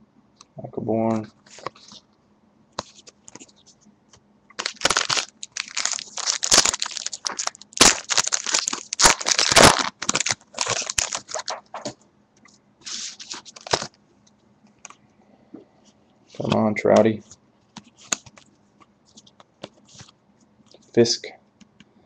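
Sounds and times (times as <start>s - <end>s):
foil wrapper tearing and crinkling: 4.5s - 11.9s, 12.9s - 14.0s.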